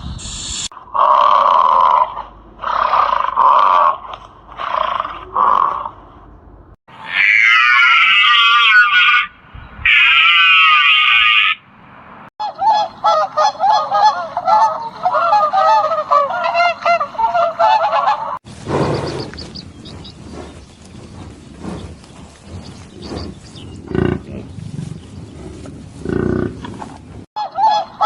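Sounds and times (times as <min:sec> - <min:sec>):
harsh animal calls: 0:06.9 - 0:11.6, 0:21.6 - 0:24.6.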